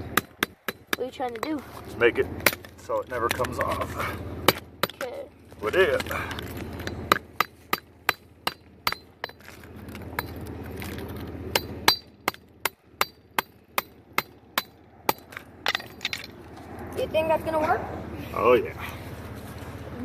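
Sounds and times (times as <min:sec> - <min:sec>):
hammer striking metal: 0:06.8 - 0:09.4, 0:11.5 - 0:16.3.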